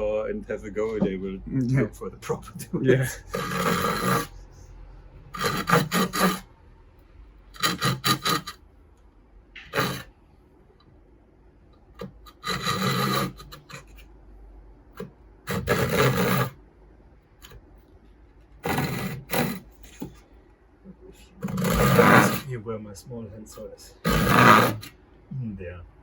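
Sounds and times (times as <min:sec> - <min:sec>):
small knocks: 0:00.8 - 0:01.2
tool rasping against wood: 0:03.1 - 0:06.5, 0:07.5 - 0:08.6, 0:09.6 - 0:10.1, 0:12.0 - 0:14.1, 0:15.0 - 0:16.6, 0:18.6 - 0:20.2, 0:21.4 - 0:22.5, 0:23.9 - 0:25.0.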